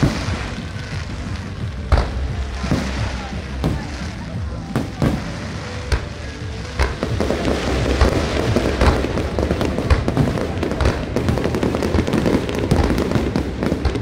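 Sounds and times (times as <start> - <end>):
fireworks booming: 0.0 - 14.0
fireworks cracking: 0.0 - 14.0.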